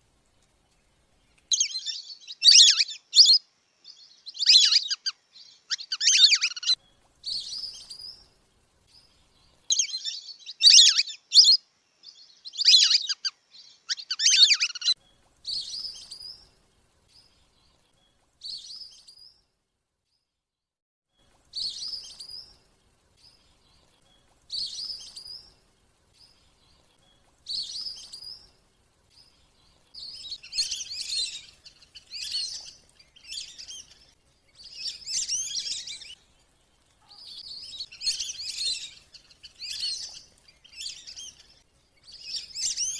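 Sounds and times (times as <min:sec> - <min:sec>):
duck whistling calls: 0:13.9 - 0:14.9.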